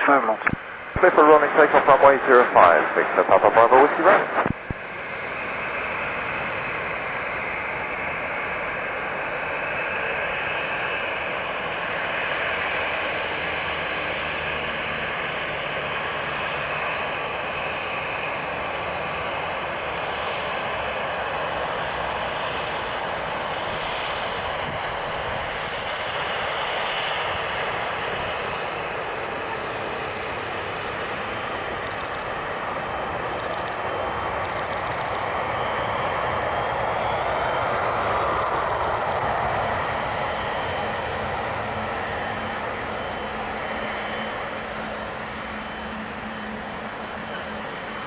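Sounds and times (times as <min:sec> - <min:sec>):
jet engines at takeoff: 0:00.0 - 0:48.0.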